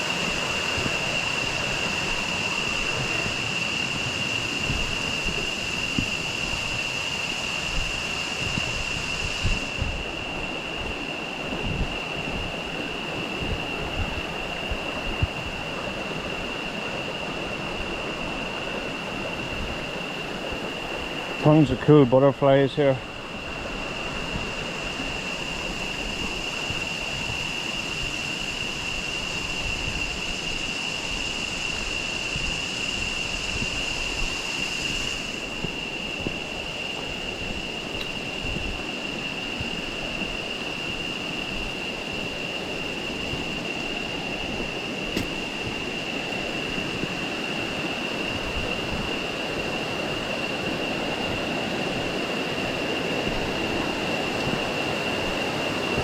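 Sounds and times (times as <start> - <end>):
river water flowing: 0.0 - 8.4
rushing river water: 0.0 - 22.4
steady high-pitched whine: 0.0 - 56.0.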